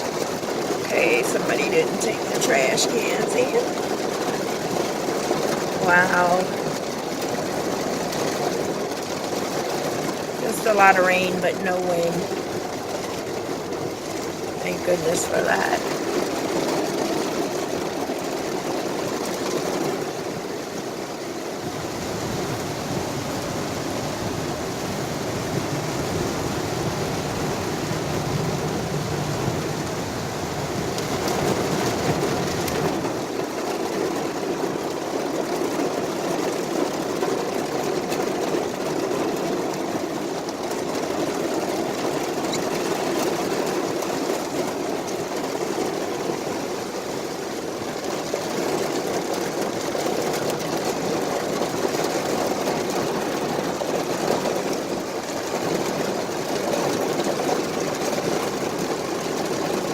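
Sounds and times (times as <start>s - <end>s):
rain falling on car: 0.0s - 59.9s.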